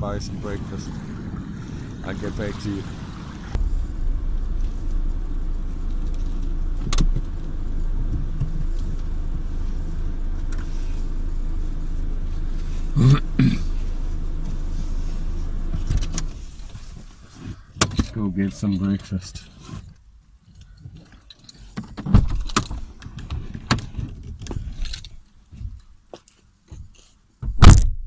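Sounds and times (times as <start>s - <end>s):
car engine and road rumble: 0.0s - 28.0s
bumps: 2.9s - 8.7s.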